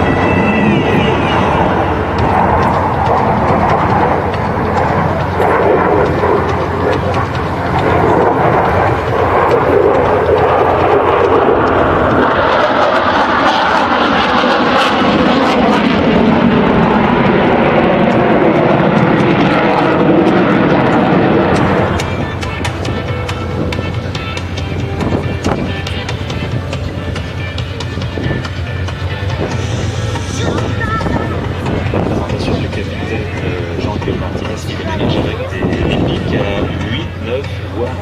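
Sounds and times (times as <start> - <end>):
fighter jet engines roaring: 0.0 - 38.0.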